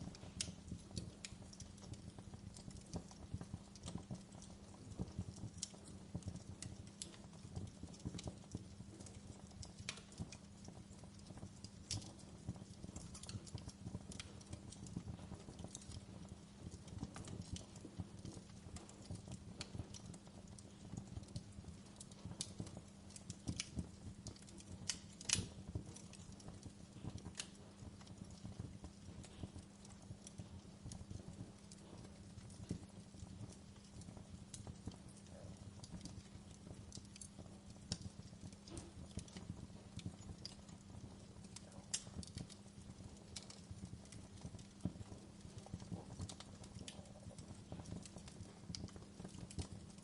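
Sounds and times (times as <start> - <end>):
wood fire crackling and popping: 0.0 - 50.0.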